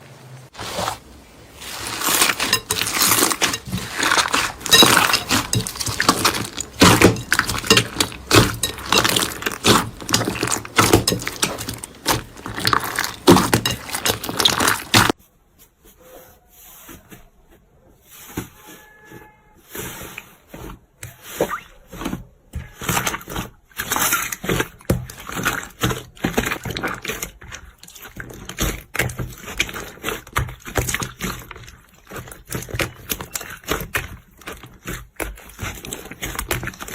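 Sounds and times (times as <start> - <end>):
slime crackling and popping: 1.6 - 15.2.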